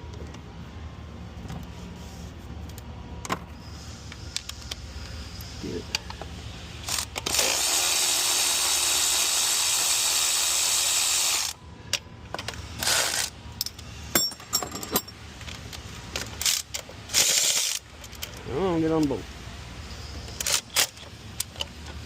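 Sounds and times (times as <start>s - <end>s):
power tool running: 6.8s - 11.6s.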